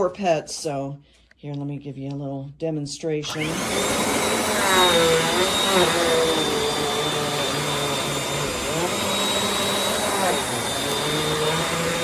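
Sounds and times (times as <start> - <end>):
vacuum cleaner running: 3.2 - 12.0.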